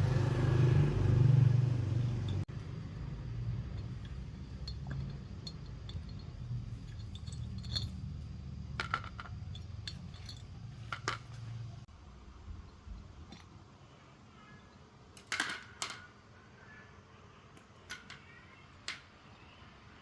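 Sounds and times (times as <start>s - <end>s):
metallic clinks of tools: 3.6s - 11.5s.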